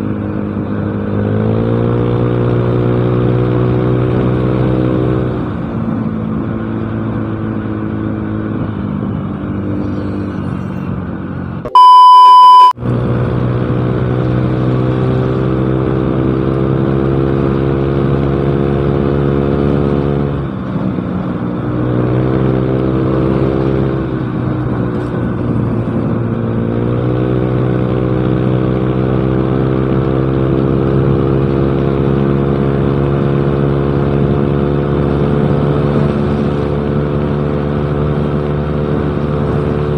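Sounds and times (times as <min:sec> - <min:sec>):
high steady bleep tone: 0:11.7 - 0:12.8.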